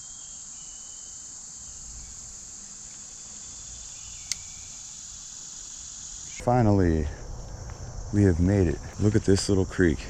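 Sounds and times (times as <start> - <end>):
insect chorus drone: 0.0 - 10.0
sharp click: 4.2 - 4.5.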